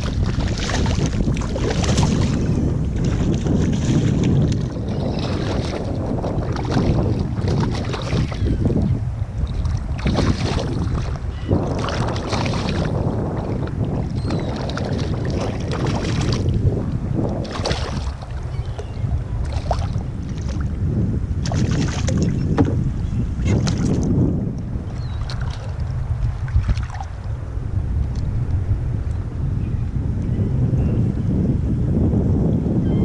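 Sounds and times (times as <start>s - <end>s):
water splashing against kayak: 0.0s - 27.4s
wind rumble on microphone: 0.0s - 33.0s.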